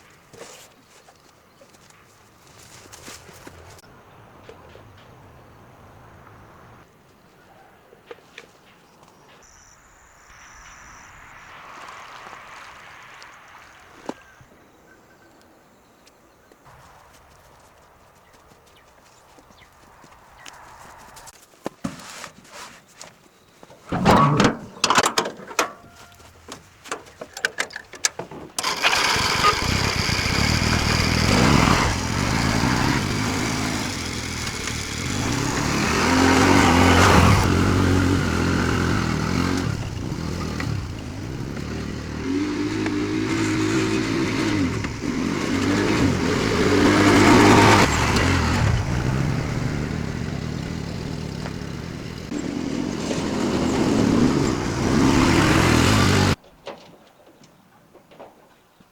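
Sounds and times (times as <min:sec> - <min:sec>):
small motorbike engine: 0:28.6 - 0:56.4.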